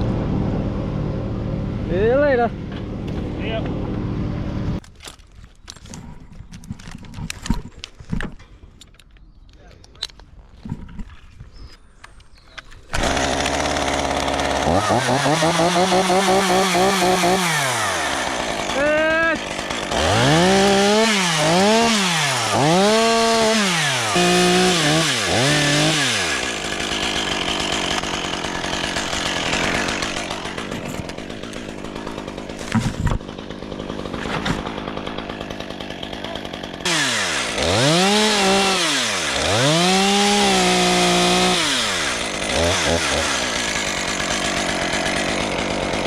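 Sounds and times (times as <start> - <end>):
chainsaw sawing: 12.8 - 46.0
chainsaw revving: 12.9 - 46.0.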